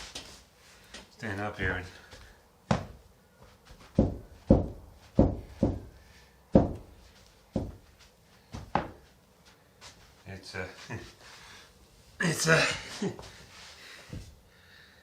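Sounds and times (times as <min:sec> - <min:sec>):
heavy footsteps on wooden floor: 0:02.0 - 0:10.1.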